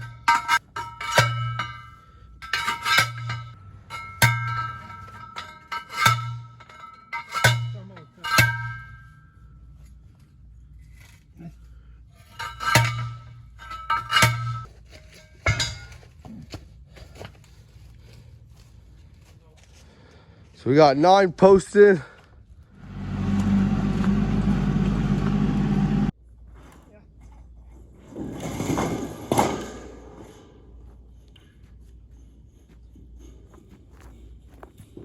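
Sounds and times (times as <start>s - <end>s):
metallic clangs of post driving: 0.0s - 9.2s, 12.3s - 14.7s, 15.4s - 16.0s.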